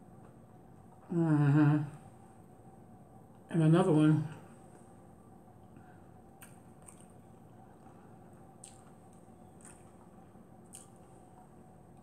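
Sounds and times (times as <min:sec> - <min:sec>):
wet mouth clicks: 0:06.4 - 0:07.2, 0:08.6 - 0:09.9, 0:10.6 - 0:11.1
chewing: 0:06.4 - 0:11.6.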